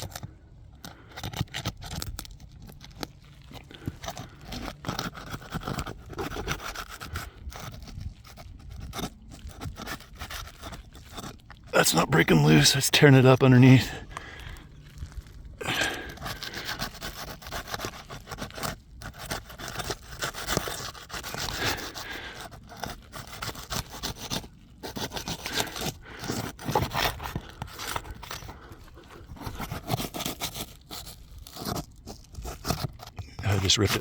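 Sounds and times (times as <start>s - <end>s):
roof shingle scraping and rubbing: 0.0s - 34.0s
shingle tearing: 0.0s - 34.0s.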